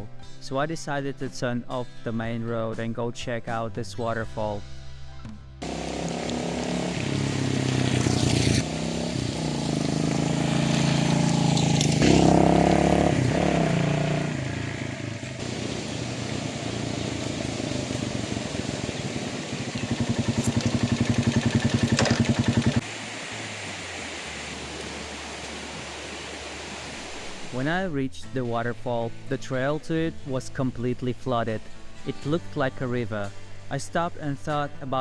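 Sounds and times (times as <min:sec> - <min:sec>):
motorbike engine revving: 0:05.6 - 0:27.5
wind and road noise: 0:05.6 - 0:27.6.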